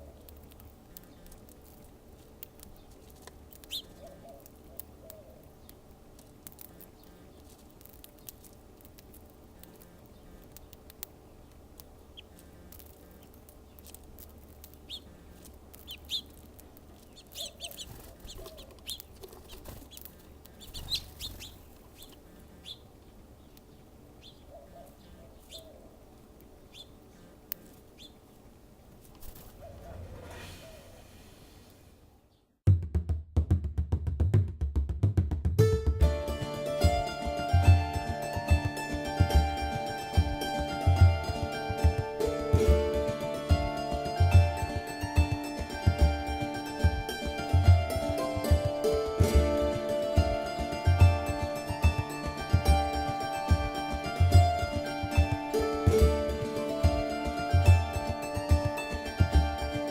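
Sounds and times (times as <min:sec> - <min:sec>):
birds chirping: 0:00.0 - 0:32.6
low bird calls: 0:02.7 - 0:05.8, 0:14.8 - 0:16.4, 0:17.0 - 0:26.0, 0:26.6 - 0:28.3, 0:29.3 - 0:31.6
wing flutters: 0:17.0 - 0:22.2, 0:29.0 - 0:31.9.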